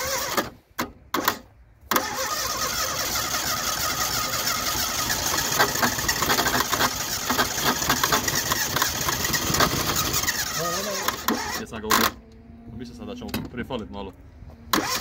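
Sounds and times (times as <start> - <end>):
petrol engine running: 1.9 - 12.1.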